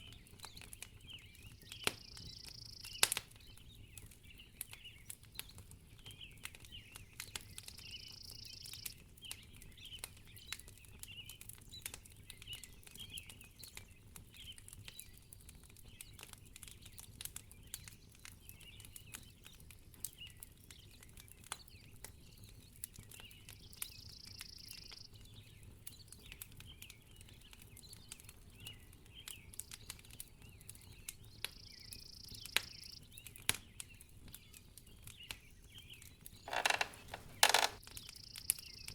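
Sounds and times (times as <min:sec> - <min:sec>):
wood fire crackling: 0:36.5 - 0:38.9.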